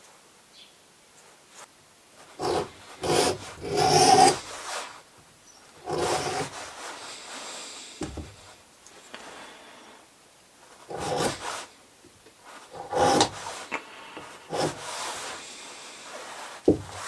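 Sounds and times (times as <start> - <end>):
edge beveler scraping leather: 2.4 - 4.8, 5.8 - 6.9, 10.9 - 11.7, 12.6 - 13.8, 14.5 - 15.4, 16.0 - 17.0.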